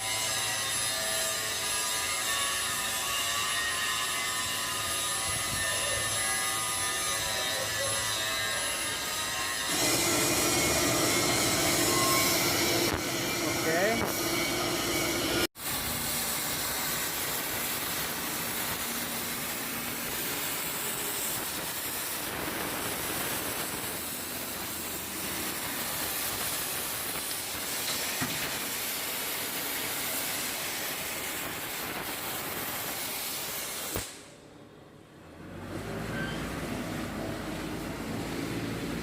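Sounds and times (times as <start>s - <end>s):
cutting torch hissing: 8.8s - 34.3s.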